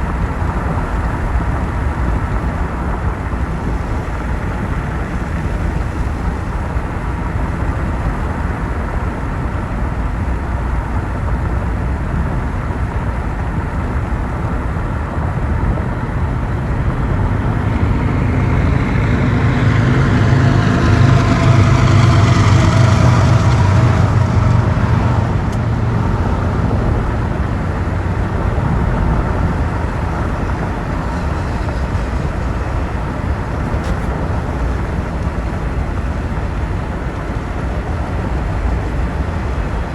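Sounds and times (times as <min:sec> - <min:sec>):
tyre noise on wet road: 0:00.0 - 0:39.9
vehicle passing: 0:13.0 - 0:39.9.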